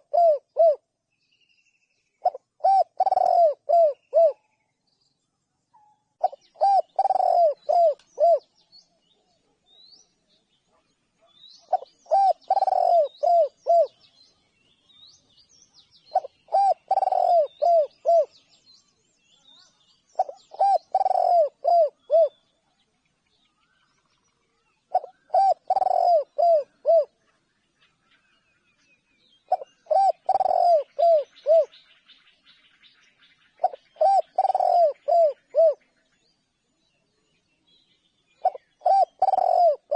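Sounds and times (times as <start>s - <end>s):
dove cooing: 0.0s - 0.8s, 2.2s - 4.4s, 6.2s - 8.4s, 11.6s - 14.0s, 16.1s - 18.4s, 20.2s - 22.4s, 24.9s - 27.2s, 29.5s - 31.8s, 33.6s - 35.9s, 38.4s - 39.9s
small birds chirping: 0.0s - 39.9s.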